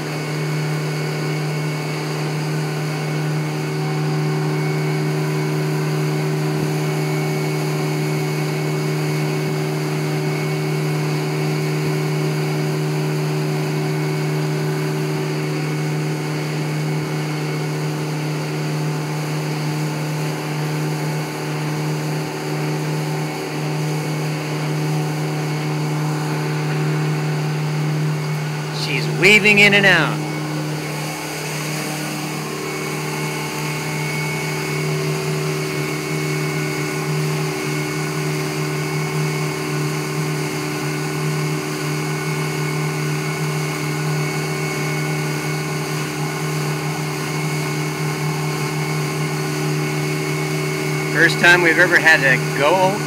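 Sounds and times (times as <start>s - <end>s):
boat engine humming: 51.2s - 53.0s.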